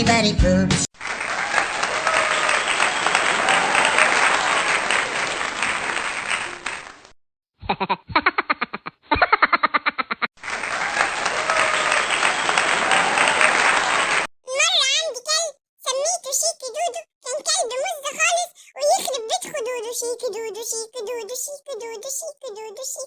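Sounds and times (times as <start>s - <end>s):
crowd clapping: 1.0s - 7.2s, 10.4s - 14.3s.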